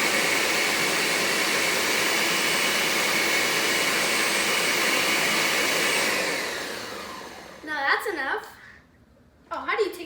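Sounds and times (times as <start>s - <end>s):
blender running: 0.0s - 7.8s.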